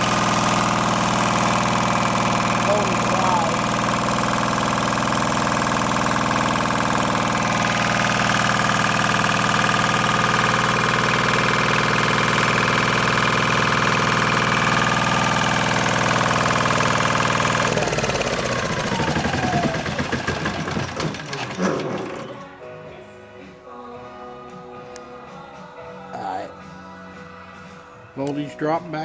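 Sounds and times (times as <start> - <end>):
machine winding down whine: 0.0 - 22.4
small diesel engine running: 0.0 - 22.6.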